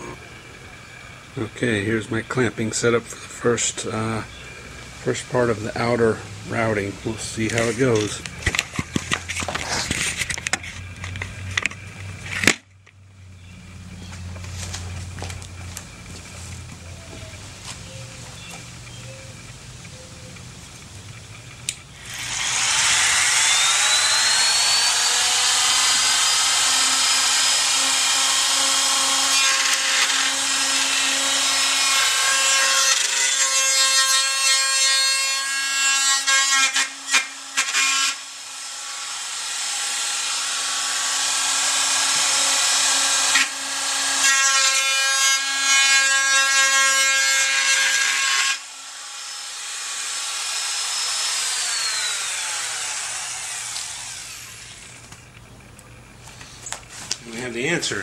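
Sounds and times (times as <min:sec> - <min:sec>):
router bit cutting wood: 0:00.0 - 0:12.6, 0:22.0 - 0:55.0
wood router motor whine: 0:00.0 - 0:12.6, 0:21.1 - 0:55.4.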